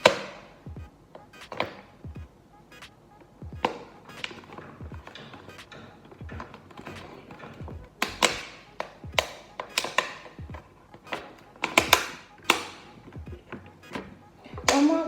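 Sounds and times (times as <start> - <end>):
sharp kitchen taps and clicks: 3.6 - 13.3.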